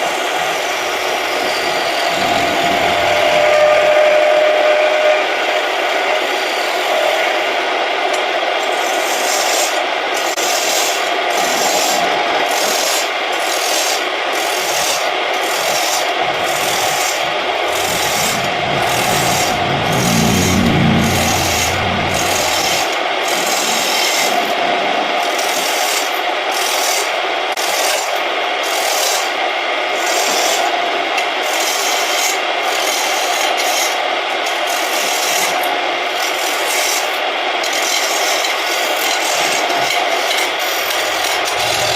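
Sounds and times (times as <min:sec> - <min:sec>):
low rumble: 0:01.8 - 0:06.4, 0:16.2 - 0:22.9, 0:41.2 - 0:41.9
tool scraping spinning wood: 0:10.4 - 0:23.0, 0:39.9 - 0:41.9.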